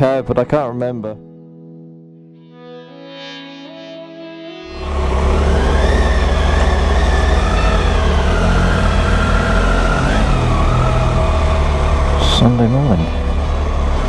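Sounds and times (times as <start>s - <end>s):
motorcycle engine running: 4.7s - 14.0s.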